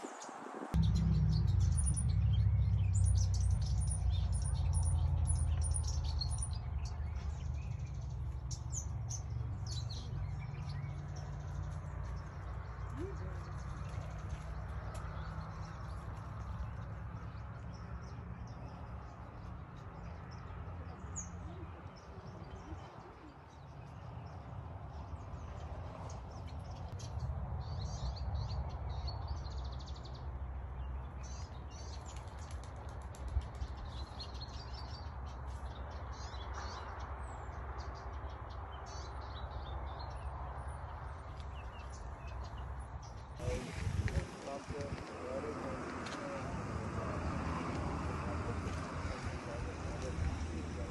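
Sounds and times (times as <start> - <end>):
songbirds chirping and twittering: 0.0 - 50.9
steady low rumble: 0.7 - 20.1.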